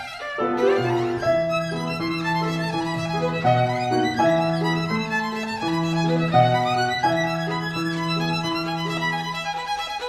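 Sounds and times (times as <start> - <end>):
violin playing held notes: 0.0 - 10.0.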